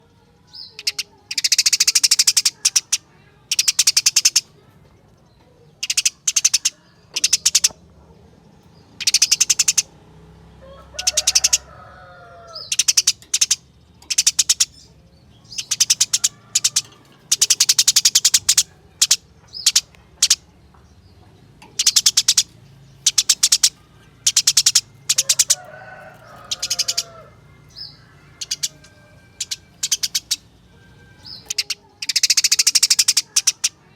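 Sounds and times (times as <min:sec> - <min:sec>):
sparrow trilled chirps: 0:00.1 - 0:04.6, 0:05.2 - 0:33.9
low bird warbling: 0:21.6 - 0:33.9.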